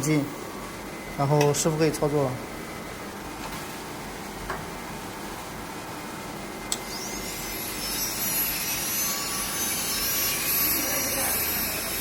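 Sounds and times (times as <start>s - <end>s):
rotary handpiece motor whine: 6.7s - 12.0s.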